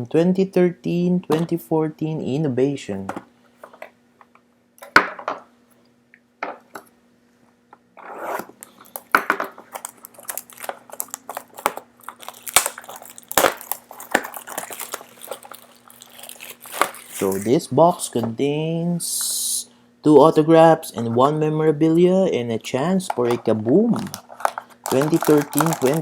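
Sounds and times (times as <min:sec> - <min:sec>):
faint steady hum: 0:00.0 - 0:26.0
packaging crinkling and tearing: 0:08.6 - 0:17.6, 0:23.2 - 0:26.0.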